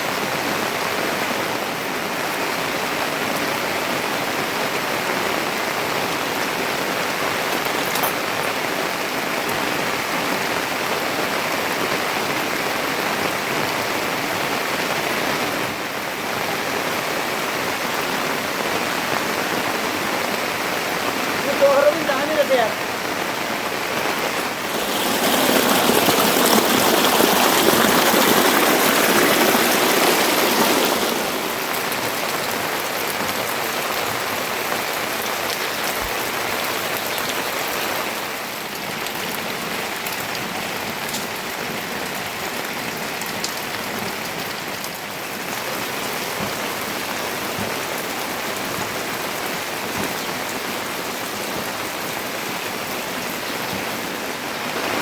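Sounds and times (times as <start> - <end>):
steady rain falling: 0.0 - 55.0
raindrop ticks: 38.7 - 41.4, 43.1 - 45.0.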